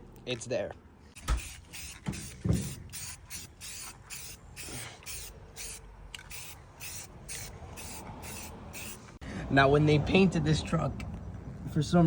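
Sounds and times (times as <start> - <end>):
dull thump: 1.2 - 2.9
aerosol spray can hissing bursts: 1.2 - 9.1.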